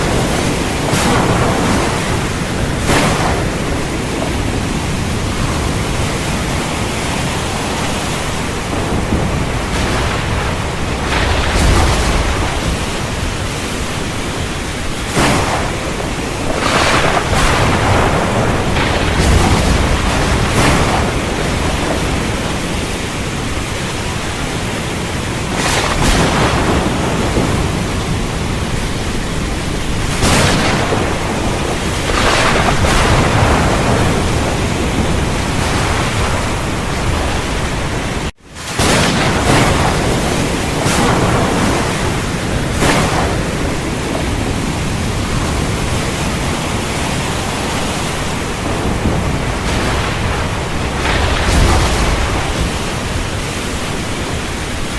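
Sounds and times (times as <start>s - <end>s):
close thunder cracks: 0.0s - 54.9s
heavy rain pouring: 0.0s - 54.9s.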